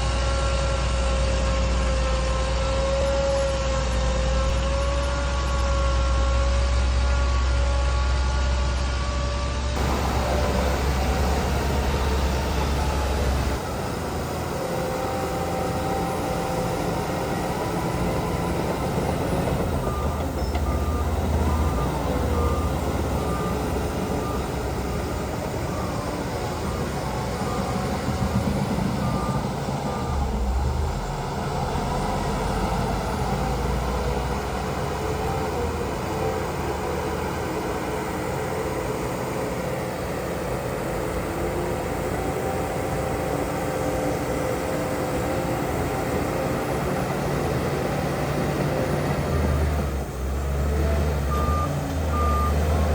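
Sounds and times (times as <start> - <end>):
heavy diesel engines running: 0.0 - 52.9
reversing alarm beeps: 9.8 - 14.0, 14.8 - 33.4, 51.2 - 52.9.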